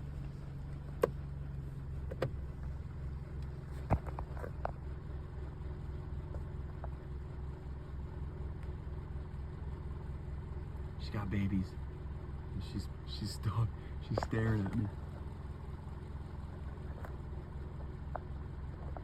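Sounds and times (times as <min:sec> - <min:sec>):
motor idling: 0:00.0 - 0:19.0.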